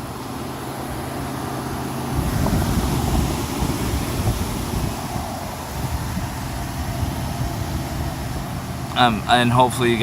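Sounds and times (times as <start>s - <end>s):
wind buffeting microphone: 1.7s - 9.3s.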